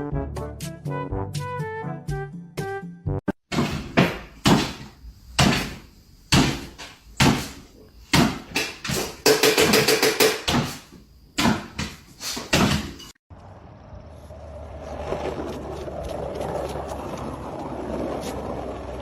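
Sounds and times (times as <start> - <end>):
loud knocks: 3.5 - 13.1
rapid knocking rattle: 4.4 - 10.7.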